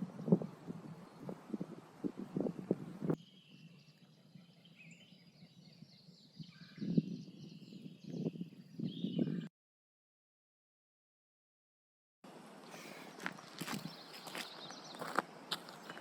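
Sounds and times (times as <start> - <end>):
small birds chirping: 0.0 - 9.5, 12.3 - 16.0
footsteps on a trail: 12.6 - 16.0.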